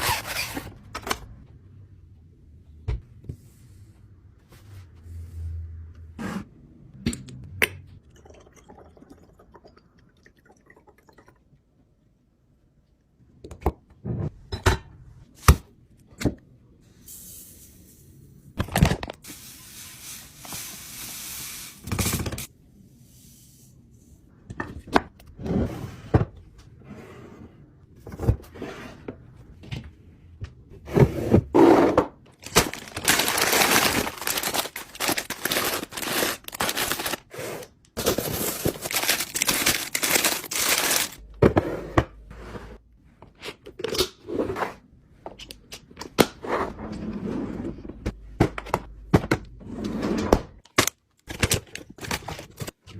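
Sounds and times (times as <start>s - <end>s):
items knocking and scraping: 30.8s - 42.2s.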